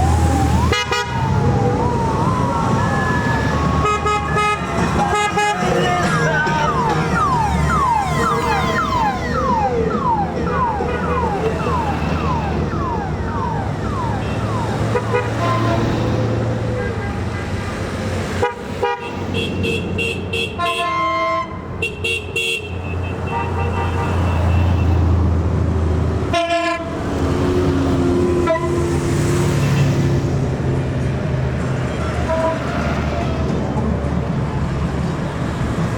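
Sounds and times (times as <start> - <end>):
electronic siren whooping: 0.0 - 15.4
motorcycle engines rumbling: 0.0 - 20.7
motorcycle horns: 0.7 - 1.2, 3.8 - 8.7, 14.2 - 16.0, 18.3 - 25.0, 26.3 - 27.0, 28.4 - 29.0, 32.2 - 32.7.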